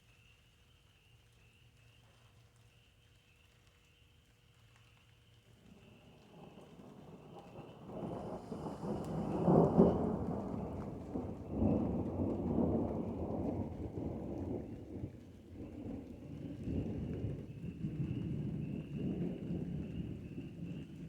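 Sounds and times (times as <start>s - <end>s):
rolling thunder: 5.8s - 21.0s.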